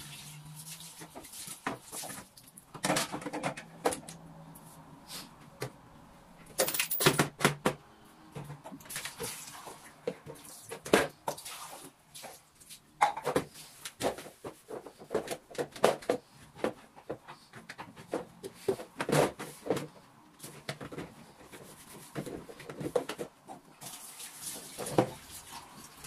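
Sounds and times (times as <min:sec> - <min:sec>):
household objects clicking and knocking: 0:01.7 - 0:04.2, 0:06.5 - 0:07.8.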